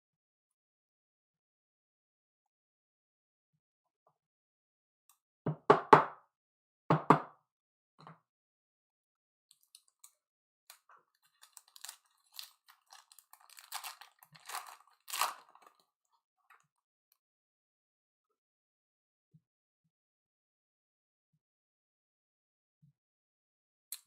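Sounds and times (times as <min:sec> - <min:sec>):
card pack wrapper crinkling: 0:11.2 - 0:15.8.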